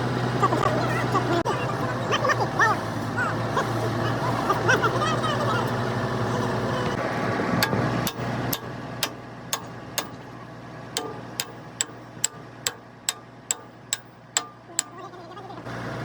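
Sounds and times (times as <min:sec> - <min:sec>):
hammer tapping on metal: 0:07.6 - 0:10.3, 0:11.0 - 0:15.0.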